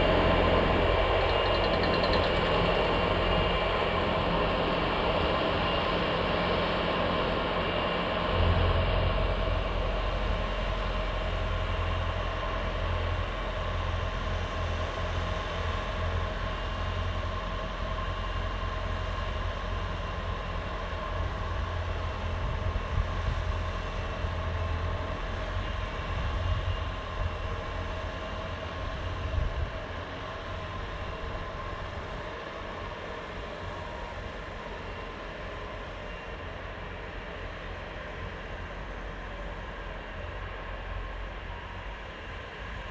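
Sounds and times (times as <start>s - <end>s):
track loader engine rumbling: 0.0s - 4.9s
snowblower whine: 0.0s - 11.6s.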